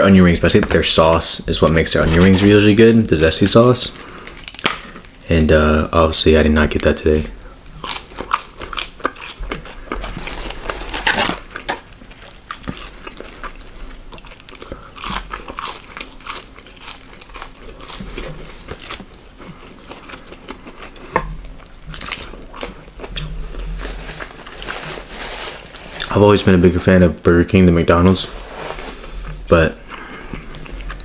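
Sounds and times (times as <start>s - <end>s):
person chewing crunchy food: 7.4s - 26.1s, 28.3s - 31.0s.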